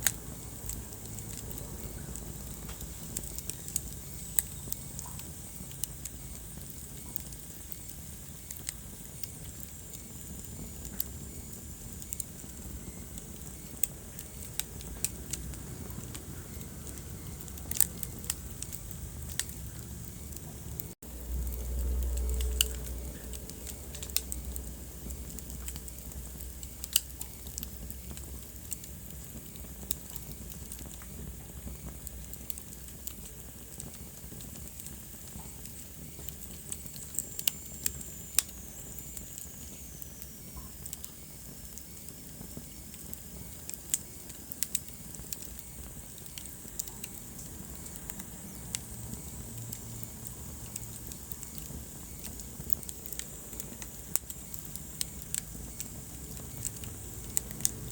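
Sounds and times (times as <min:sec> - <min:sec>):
wood fire crackling: 0:00.0 - 0:57.9.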